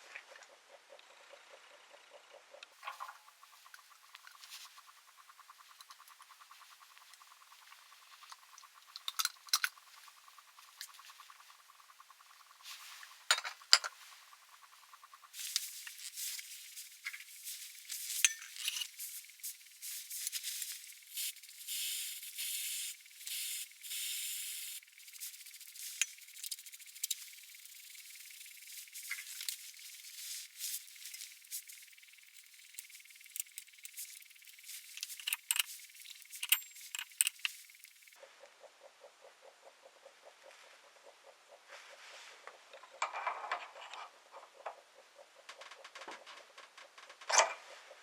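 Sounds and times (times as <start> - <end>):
metal objects clinking and scraping: 13.3 - 14.0, 15.4 - 19.2, 19.9 - 27.9, 28.7 - 38.0.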